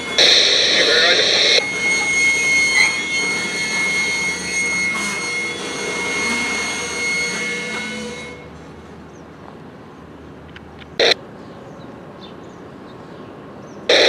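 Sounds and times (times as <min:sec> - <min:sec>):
high-pitched wheel squeal: 0:00.0 - 0:08.7
train wheels rumbling on rail: 0:00.0 - 0:14.0.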